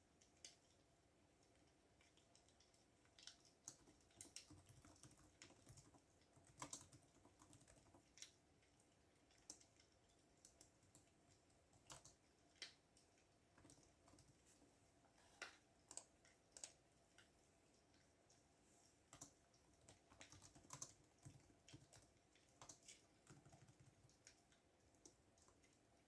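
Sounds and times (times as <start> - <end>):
typing on computer keyboard: 2.3 - 8.4, 9.4 - 12.8, 13.6 - 14.4, 15.9 - 16.8, 19.1 - 25.7.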